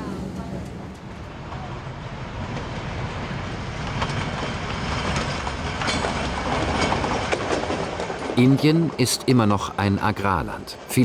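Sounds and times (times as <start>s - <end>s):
train rolling past: 0.0s - 11.0s
wheel clicks over rail joints: 3.9s - 10.2s.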